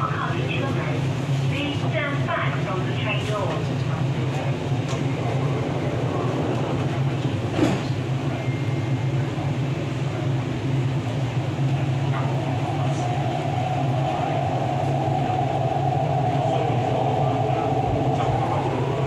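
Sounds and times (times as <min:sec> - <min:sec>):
train wheels rumbling on rails: 0:00.0 - 0:19.0
steady hum: 0:04.6 - 0:19.0.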